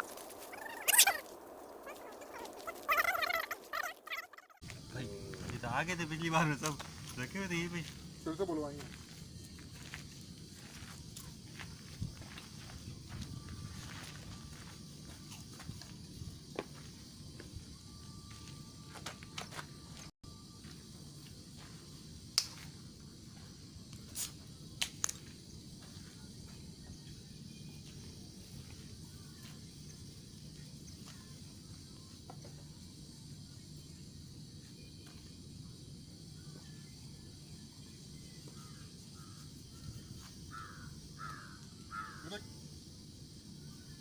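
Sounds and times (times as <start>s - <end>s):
bird calling: 0.0s - 4.6s.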